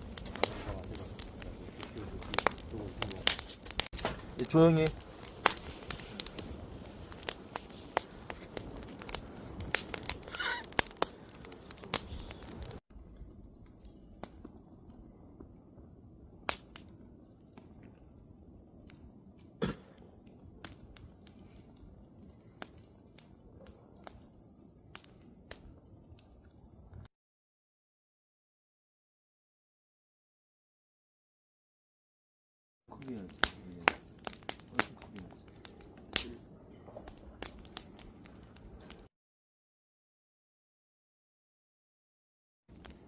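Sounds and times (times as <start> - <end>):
campfire crackling and popping: 0.0 - 27.1, 32.9 - 39.1, 42.7 - 43.0.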